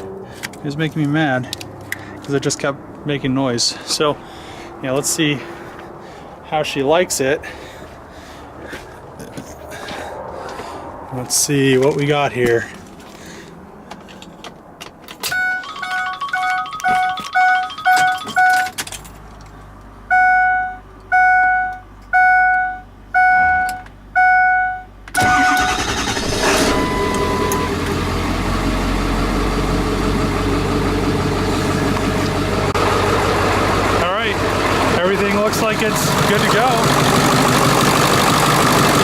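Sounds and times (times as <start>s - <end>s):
dashboard warning chimes: 15.2s - 18.8s, 20.1s - 27.9s
diesel engine cranking: 25.1s - 39.0s
diesel engine idling: 25.2s - 39.0s.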